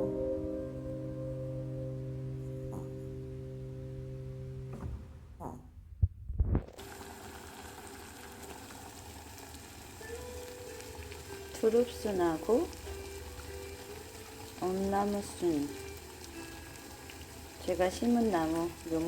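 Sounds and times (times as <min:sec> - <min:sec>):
low knocks: 0:04.6 - 0:06.7
hissing crackly background noise: 0:06.4 - 0:19.0.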